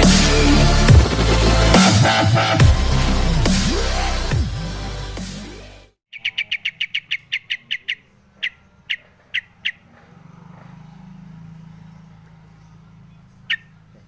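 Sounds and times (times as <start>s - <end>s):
bird chirping: 6.1s - 14.0s.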